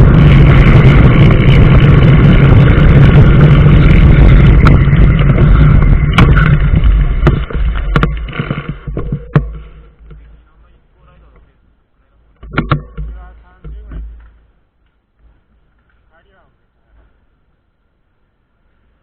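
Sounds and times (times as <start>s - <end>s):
vehicle engine and road hum: 0.0s - 19.0s.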